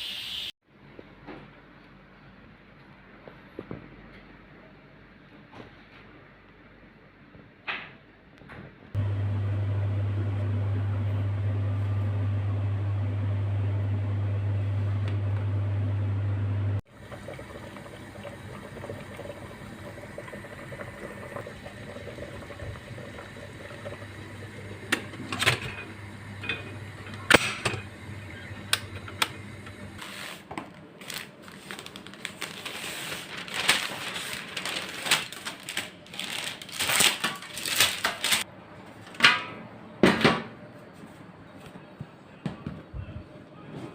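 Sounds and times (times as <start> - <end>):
kitchen appliance humming: 9.0 - 30.2.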